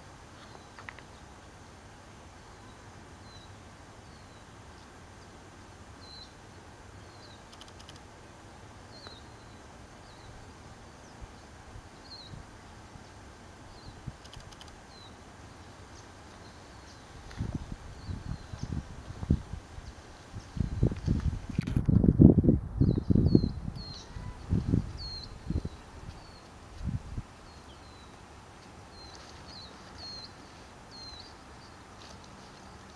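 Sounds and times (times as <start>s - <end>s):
steady background hiss: 0.0s - 32.9s
small bird chirping: 8.9s - 10.4s, 22.8s - 26.5s.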